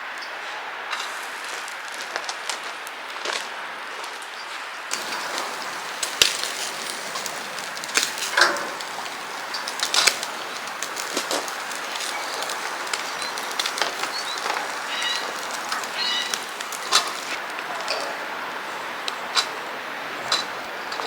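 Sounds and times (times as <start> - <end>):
barbecue grill sizzling and popping: 4.9 - 21.0.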